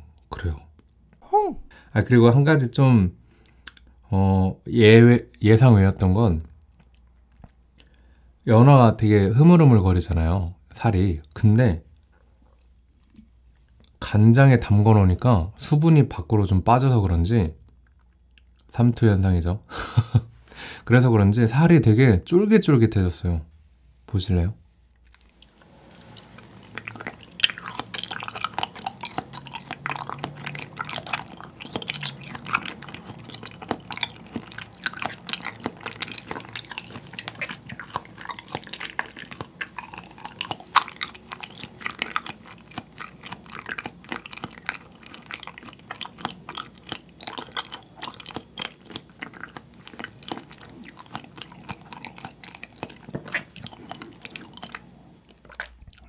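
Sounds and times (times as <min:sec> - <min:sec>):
close-miked chewing: 0:03.3 - 0:04.0, 0:06.4 - 0:08.5, 0:11.2 - 0:14.1, 0:17.6 - 0:18.8, 0:25.0 - 0:56.0.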